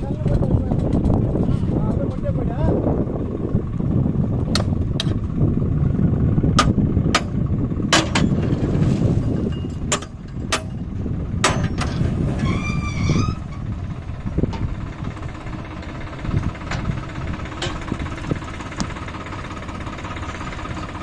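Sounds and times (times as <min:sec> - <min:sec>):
tractor engine running under load: 0:00.0 - 0:21.0
sharp knocks and clanks: 0:06.6 - 0:08.6, 0:09.4 - 0:12.0.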